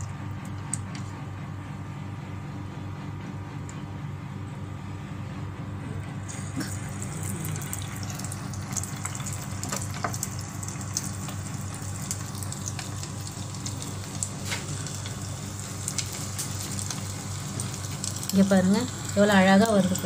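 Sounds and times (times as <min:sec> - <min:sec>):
oil crackling and popping: 0:06.3 - 0:20.0
shrimp deep-frying in oil: 0:06.3 - 0:20.0.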